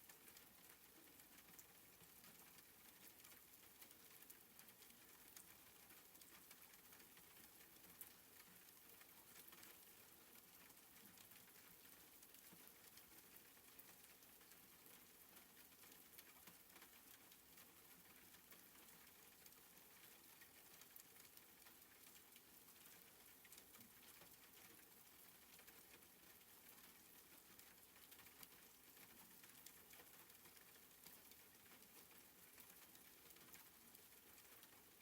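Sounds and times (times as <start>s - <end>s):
rain drops pattering: 0.0s - 35.0s
soft rain hiss: 0.0s - 35.0s.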